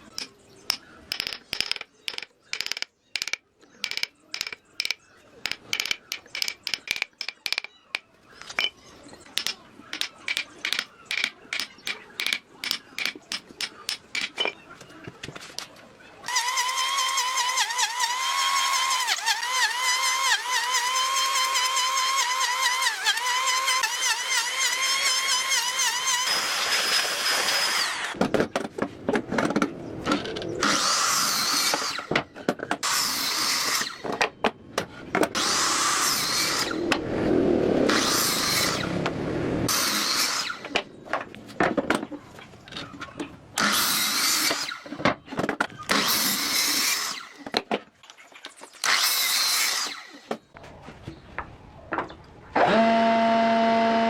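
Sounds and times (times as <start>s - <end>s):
power tool cutting wood: 16.3s - 28.2s, 30.6s - 32.1s, 32.8s - 34.0s, 35.3s - 37.0s, 37.9s - 39.0s, 39.7s - 40.8s, 43.6s - 44.9s, 45.9s - 47.4s, 48.8s - 50.3s, 52.6s - 54.0s.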